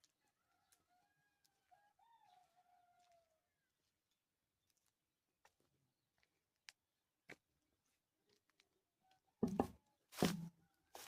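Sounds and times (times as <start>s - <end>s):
rooster crowing: 0.2s - 3.4s.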